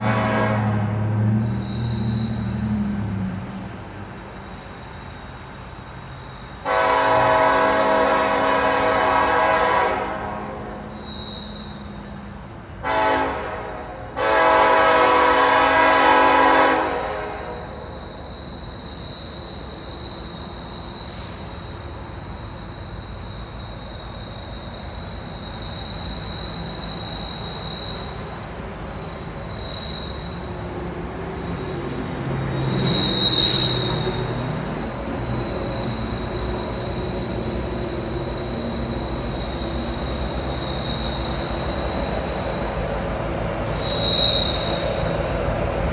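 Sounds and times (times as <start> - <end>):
locomotive air horn: 0.0 - 2.1, 6.6 - 11.5, 12.8 - 19.9
train rumbling: 0.0 - 45.9
high wheel squeal: 0.4 - 3.0, 4.1 - 45.9.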